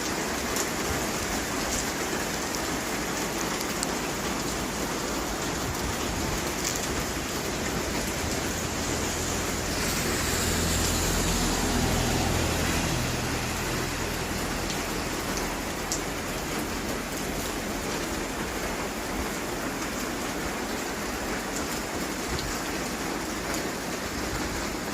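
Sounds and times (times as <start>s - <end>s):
steady rain falling: 0.0s - 24.9s
low rumble: 5.7s - 17.8s.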